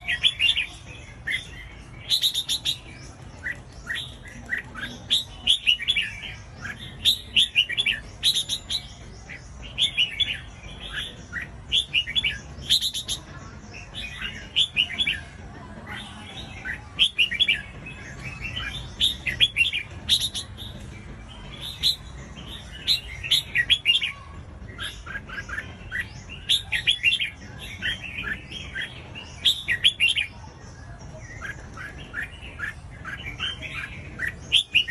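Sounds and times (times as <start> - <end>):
bulbul singing: 0.0 - 34.9.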